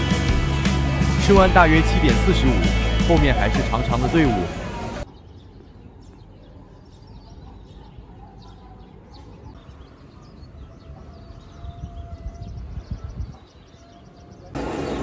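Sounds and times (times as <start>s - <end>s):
small birds chirping: 4.8s - 15.0s.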